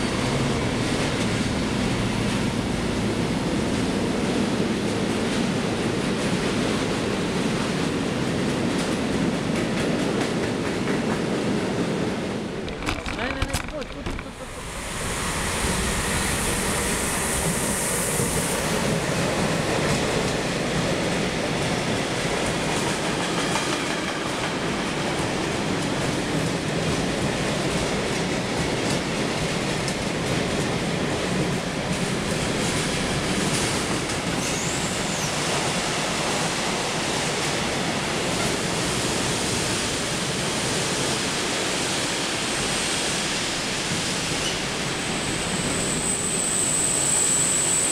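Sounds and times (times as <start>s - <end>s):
train wheels rolling on rails: 0.0s - 47.9s
high squeal: 44.4s - 47.9s.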